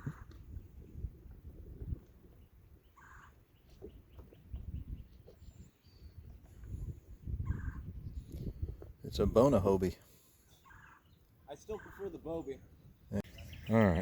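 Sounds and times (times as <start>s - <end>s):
wind rumbling on microphone: 0.0s - 9.9s
bird calling: 2.8s - 6.2s, 7.4s - 8.2s, 9.2s - 14.0s.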